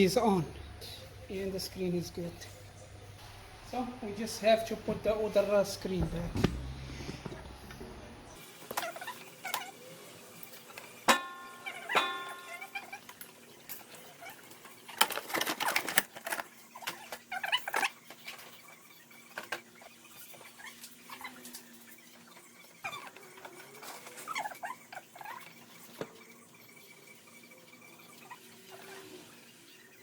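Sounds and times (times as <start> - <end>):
parts clicking and scraping: 13.1 - 21.7.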